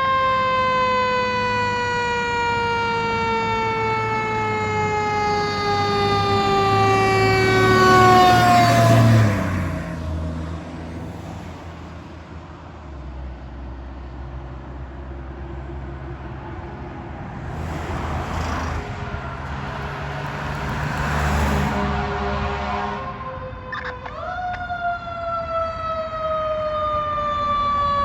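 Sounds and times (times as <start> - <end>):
siren: 0.0 - 10.1, 16.2 - 28.0
fire truck engine passing: 0.0 - 28.0
tyre and road noise: 6.1 - 24.7.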